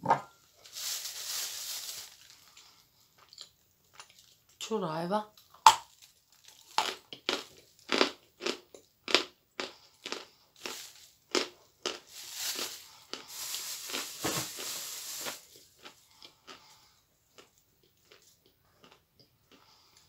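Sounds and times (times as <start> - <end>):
person chewing crunchy clay: 5.4 - 20.0.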